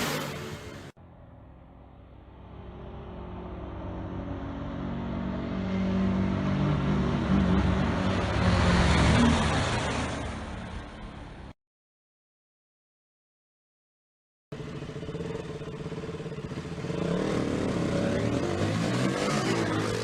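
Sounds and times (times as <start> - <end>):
motorbike approaching and passing: 0.0 - 11.5, 14.5 - 20.0
motorcycle engine running hard: 14.5 - 20.0.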